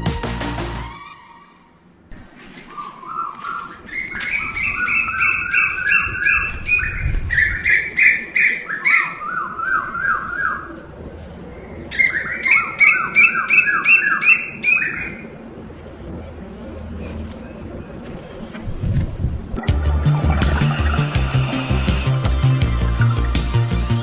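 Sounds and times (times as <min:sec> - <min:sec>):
birds chirping rapidly: 0:02.7 - 0:10.8, 0:11.5 - 0:15.4, 0:19.7 - 0:24.0.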